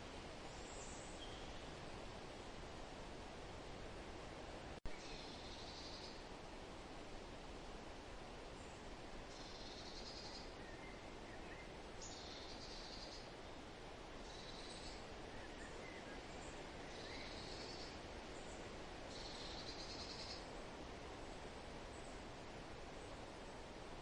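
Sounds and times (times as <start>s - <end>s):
wind rustling in trees: 0.0s - 24.0s
faint bird chirps: 0.5s - 1.8s, 4.9s - 6.2s, 8.6s - 13.3s, 14.2s - 20.6s.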